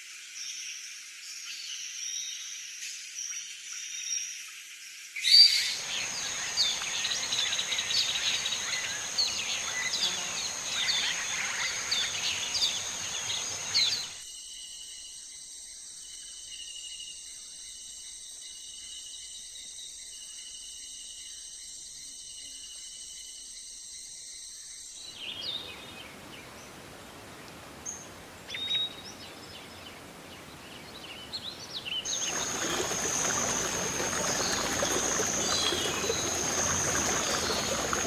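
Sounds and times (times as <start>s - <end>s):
bird chirps: 30.4s - 38.0s
high insect trill: 32.1s - 38.0s.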